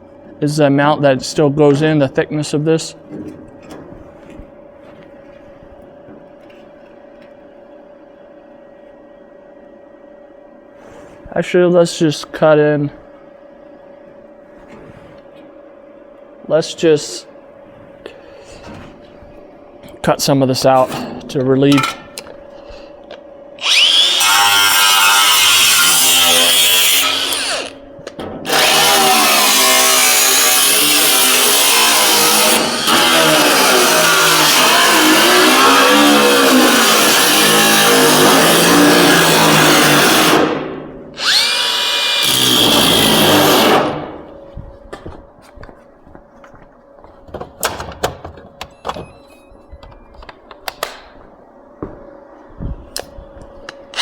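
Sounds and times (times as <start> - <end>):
power tool cutting sheet steel: 23.6 - 27.8, 28.4 - 44.2.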